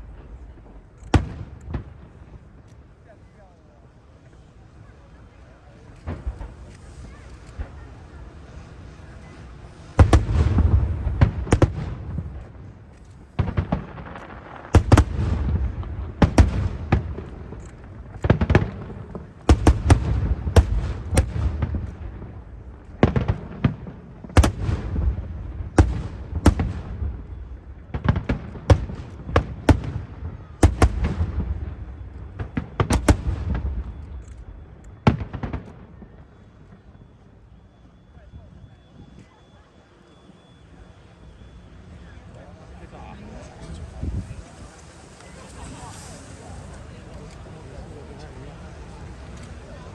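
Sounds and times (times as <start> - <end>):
fireworks bursting: 0.0 - 49.9.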